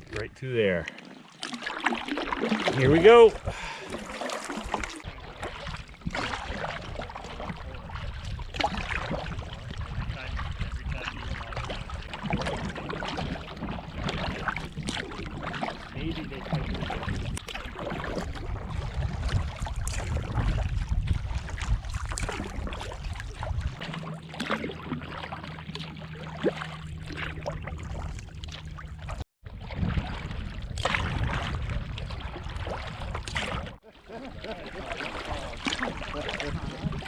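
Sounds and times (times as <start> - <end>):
paddles splashing in water: 0.0 - 37.0
wind rumbling on microphone: 4.6 - 23.8, 26.9 - 37.0.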